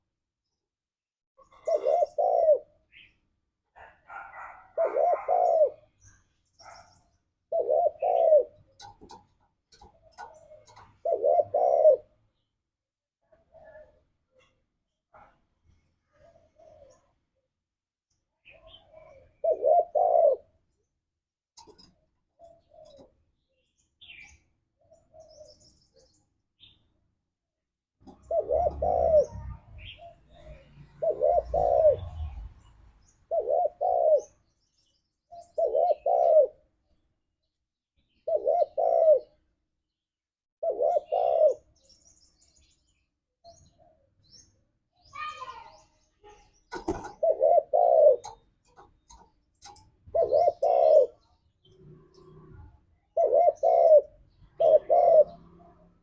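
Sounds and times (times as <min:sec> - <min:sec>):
dove cooing: 0:01.4 - 0:03.1, 0:03.8 - 0:06.0, 0:07.5 - 0:12.2, 0:16.1 - 0:17.2, 0:18.4 - 0:20.6, 0:21.6 - 0:23.2, 0:28.0 - 0:32.7, 0:33.3 - 0:34.4, 0:35.3 - 0:36.6, 0:38.1 - 0:39.4, 0:40.6 - 0:41.8, 0:46.7 - 0:51.4, 0:52.0 - 0:56.0
faint high bird chirps: 0:40.6 - 0:55.6.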